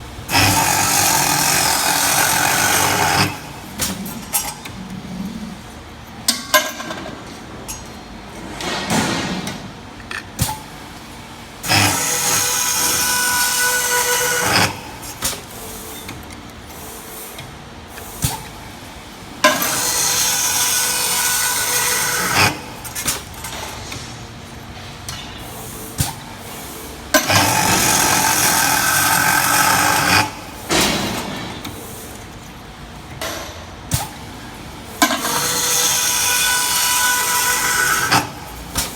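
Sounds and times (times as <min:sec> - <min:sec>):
cutting machine bursts: 0:00.2 - 0:03.6, 0:11.6 - 0:15.0, 0:27.2 - 0:30.8, 0:35.0 - 0:38.7.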